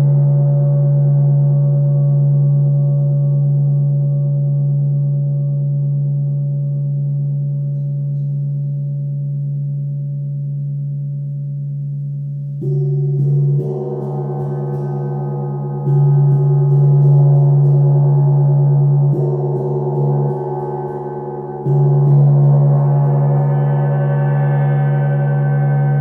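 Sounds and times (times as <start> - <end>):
gong ringing: 12.6 - 26.0.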